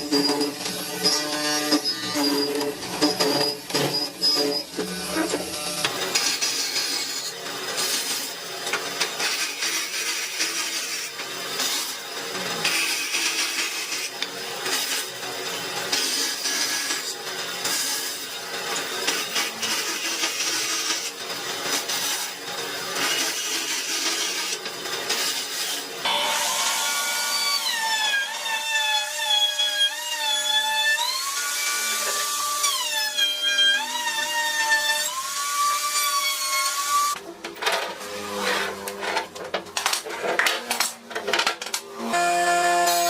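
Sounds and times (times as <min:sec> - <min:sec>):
power tool motor whine: 0:22.9 - 0:37.2, 0:42.0 - 0:43.0.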